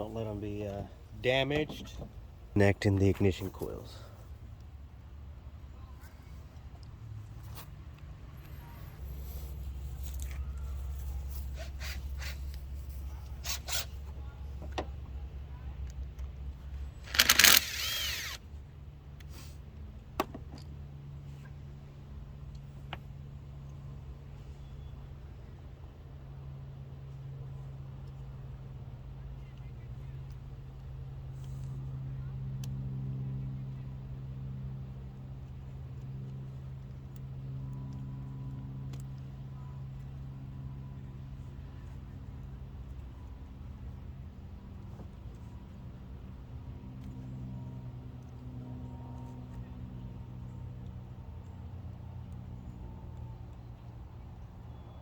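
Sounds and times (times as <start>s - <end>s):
low mechanical hum: 0.0s - 55.0s
steady low hum: 3.7s - 20.1s
single click: 17.1s - 18.4s.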